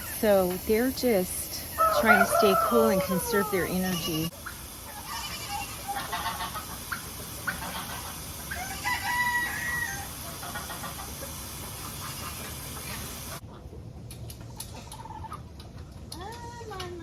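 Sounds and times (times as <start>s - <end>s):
chickens clucking: 0.0s - 17.0s
rooster crowing: 1.8s - 4.2s, 8.5s - 10.2s.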